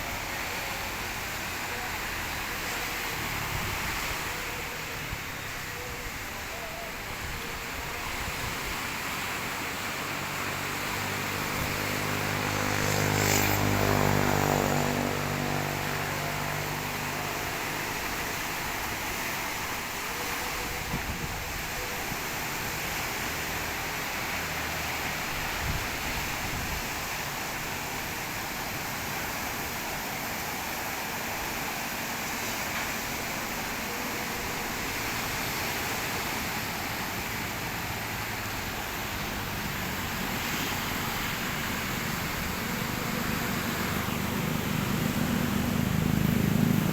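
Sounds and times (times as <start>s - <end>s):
rushing outdoor noise: 0.0s - 46.9s
vehicle engine passing by: 8.8s - 19.6s, 22.9s - 46.9s.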